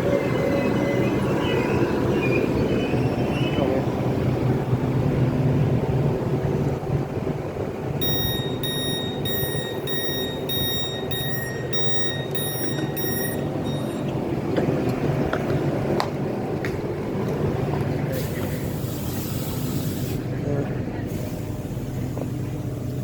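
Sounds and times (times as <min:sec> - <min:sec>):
train hum: 0:00.0 - 0:23.0
train door warning beeps: 0:08.0 - 0:14.3.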